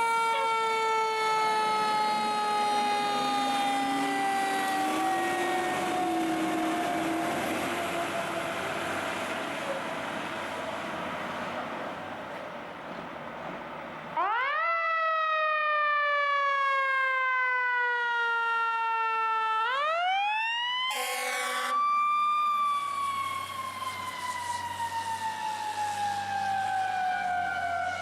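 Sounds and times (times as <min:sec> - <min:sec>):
fire truck siren wailing: 0:00.0 - 0:11.9, 0:14.1 - 0:28.0
loud horn blast: 0:20.9 - 0:21.8.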